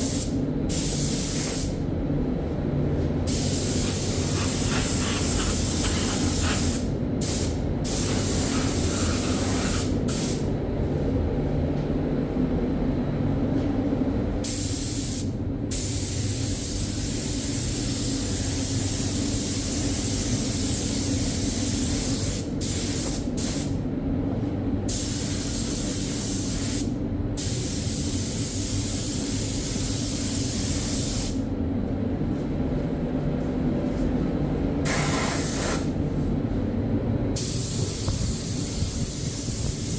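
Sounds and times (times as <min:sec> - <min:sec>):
paint spray gun hissing: 0:03.3 - 0:10.4, 0:34.9 - 0:35.8, 0:37.4 - 0:39.9.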